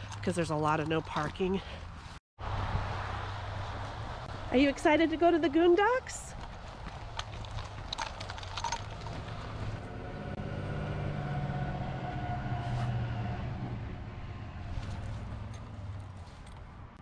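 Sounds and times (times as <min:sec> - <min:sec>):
passing vehicle engine hum: 0:06.2 - 0:17.0.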